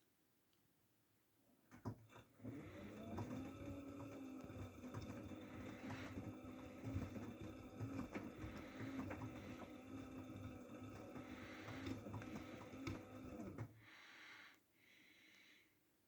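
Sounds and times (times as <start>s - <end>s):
washing machine motor hum: 1.7s - 14.0s.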